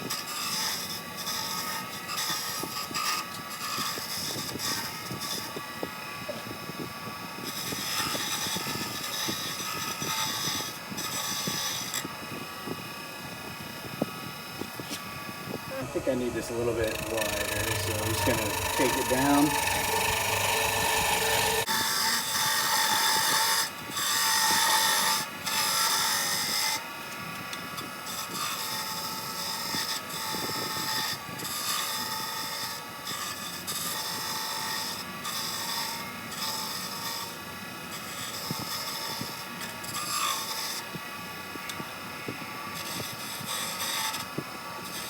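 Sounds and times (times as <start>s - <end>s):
lathe motor whine: 14.3s - 21.7s
chisel scraping spinning wood: 15.6s - 24.1s.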